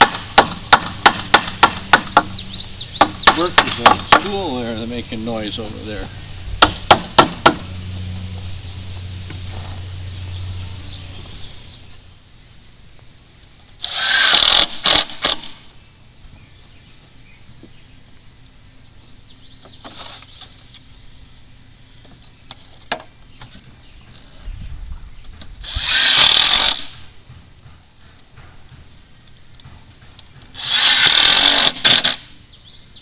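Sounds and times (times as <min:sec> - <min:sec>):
low steady hum: 0:00.0 - 0:33.0
cordless drill driving screw into wood: 0:13.8 - 0:15.7, 0:25.6 - 0:27.0, 0:30.5 - 0:32.3.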